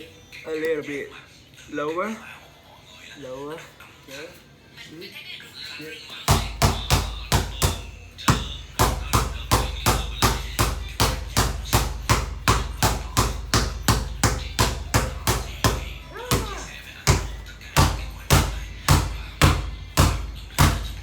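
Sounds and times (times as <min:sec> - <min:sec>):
basketball bouncing on hard floor: 0:06.3 - 0:21.0.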